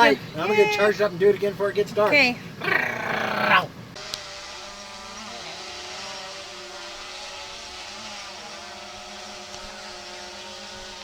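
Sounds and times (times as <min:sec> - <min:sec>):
drone propellers whining: 0:02.5 - 0:11.0.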